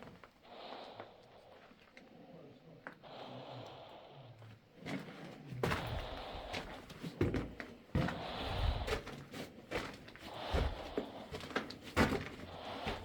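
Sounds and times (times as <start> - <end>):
footsteps crunching on rocky floor: 5.7 - 13.0.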